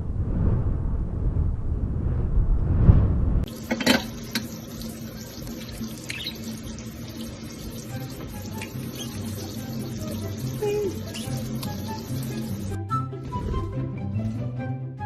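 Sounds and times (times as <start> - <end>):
tap water running into sink: 3.5 - 12.8.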